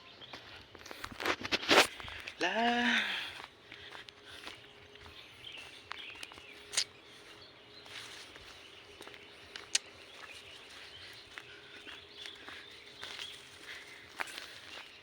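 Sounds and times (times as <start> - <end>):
footsteps on forest floor: 0.2 - 15.0
sharp twig snaps: 6.7 - 6.9.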